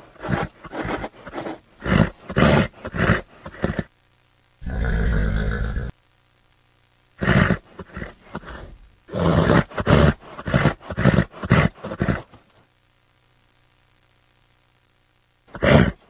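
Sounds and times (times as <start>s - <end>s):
horse calling: 0.2s - 3.9s.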